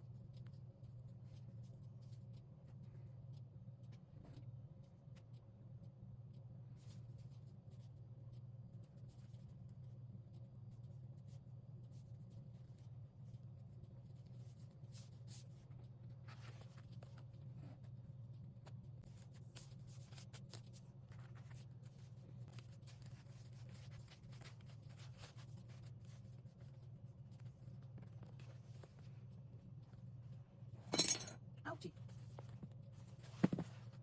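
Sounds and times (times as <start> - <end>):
paper scratching and ticking: 19.0 - 29.1.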